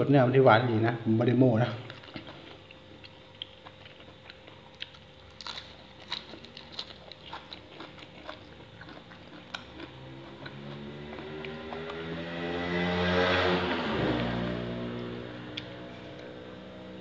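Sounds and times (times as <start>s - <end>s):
person chewing with crunches: 1.8s - 12.2s.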